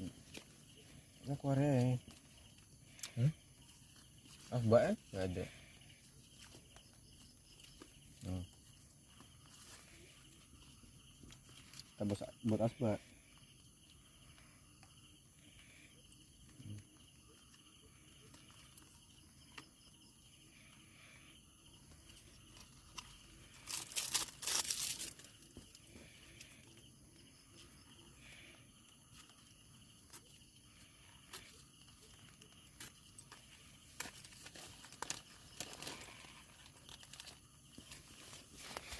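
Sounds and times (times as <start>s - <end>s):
night insects droning: 0.0s - 38.9s
crinkling and tearing: 22.4s - 25.8s, 31.3s - 38.9s.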